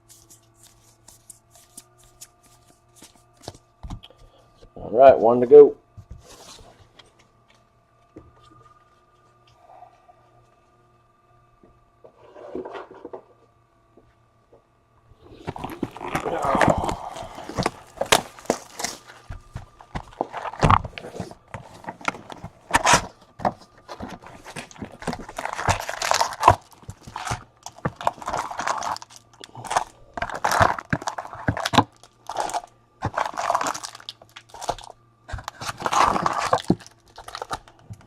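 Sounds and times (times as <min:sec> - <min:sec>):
wrappers crinkling and tearing: 0:00.0 - 0:03.6, 0:15.2 - 0:38.0
cards sliding and tapping: 0:00.0 - 0:04.2.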